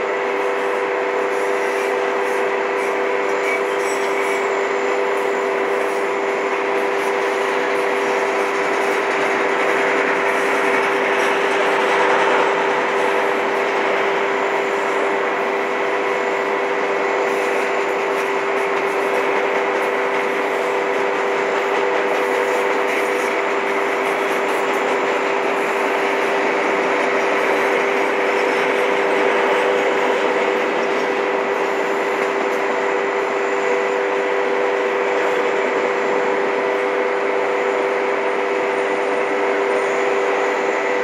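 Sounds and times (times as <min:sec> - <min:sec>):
freight train rolling past: 0:00.0 - 0:41.0
steel wheels rattling on rails: 0:00.0 - 0:41.0.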